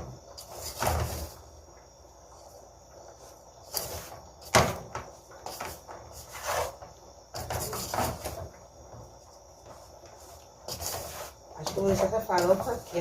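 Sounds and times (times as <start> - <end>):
utensils knocking and scraping: 10.7 - 13.0.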